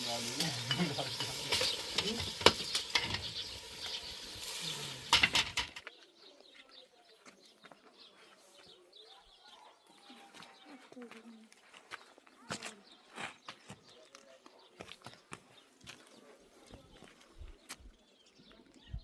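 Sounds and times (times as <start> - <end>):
steady frying hiss: 0.0 - 5.8.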